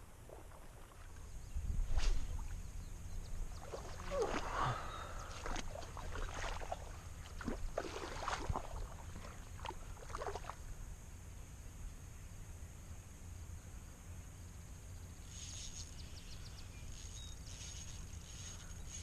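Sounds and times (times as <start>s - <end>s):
river water splashing: 0.0s - 2.6s, 3.4s - 10.7s.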